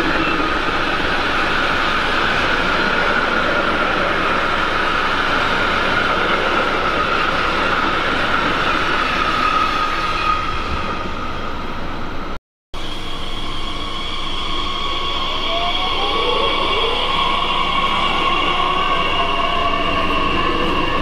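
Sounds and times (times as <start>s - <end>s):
freight train wheels on rail: 0.0s - 21.0s
electric train drive whine: 11.0s - 21.0s.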